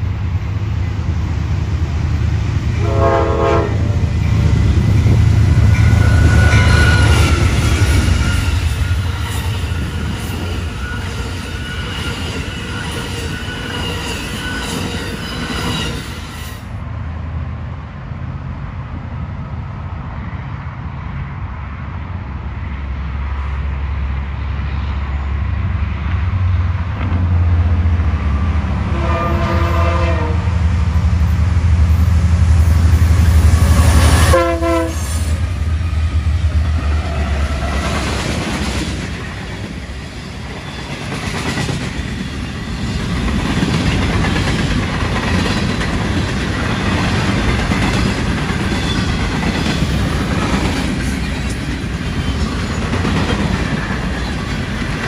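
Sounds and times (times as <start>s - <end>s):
diesel train rumbling past: 0.0s - 55.0s
train horn blasts: 2.8s - 4.3s, 28.8s - 30.6s, 33.8s - 35.4s.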